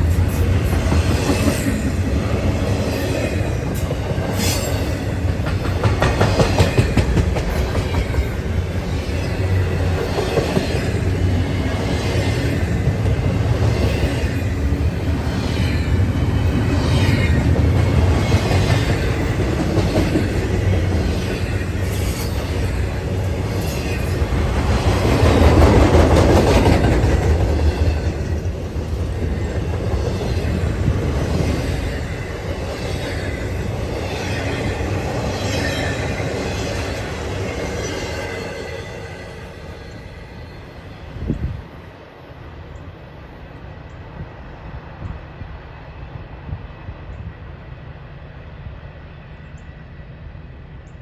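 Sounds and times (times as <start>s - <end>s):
train wheel clatter: 0.0s - 40.2s
freight train rumble: 0.0s - 51.0s.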